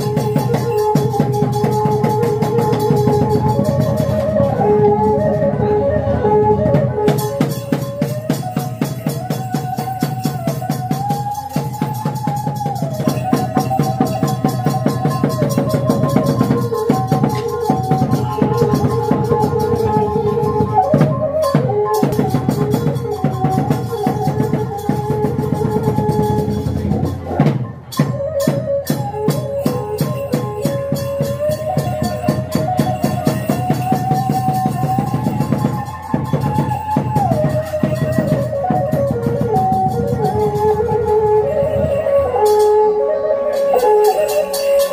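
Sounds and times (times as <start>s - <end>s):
fast drumming and percussion: 0.0s - 44.9s
sliding lead melody: 28.0s - 44.9s.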